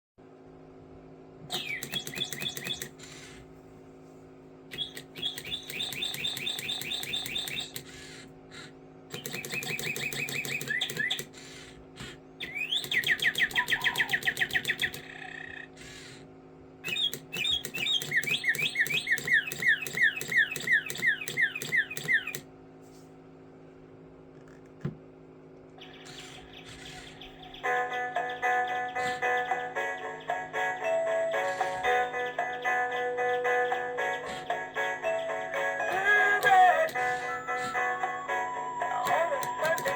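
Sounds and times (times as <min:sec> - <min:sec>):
steady low hum: 0:00.2 - 0:39.9
bird chirps and trills: 0:01.5 - 0:03.5, 0:04.7 - 0:22.4, 0:25.8 - 0:34.8, 0:39.0 - 0:39.9.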